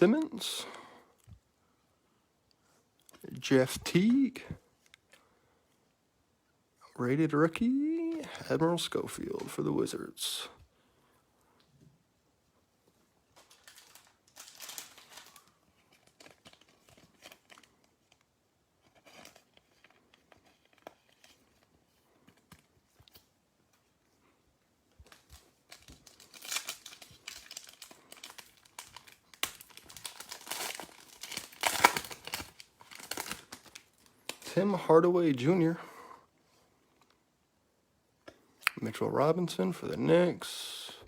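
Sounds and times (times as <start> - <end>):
card pack wrappers crinkling and tearing: 13.3 - 23.3, 25.0 - 34.5.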